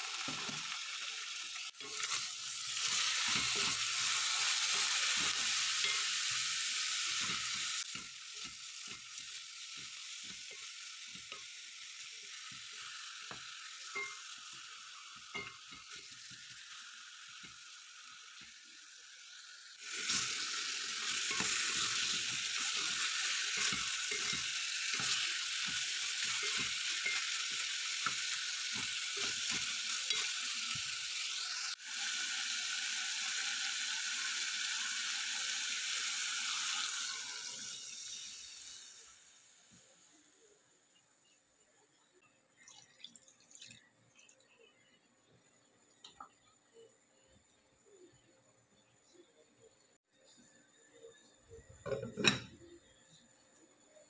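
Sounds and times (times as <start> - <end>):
chicken sizzling in a pot: 0.0 - 54.0.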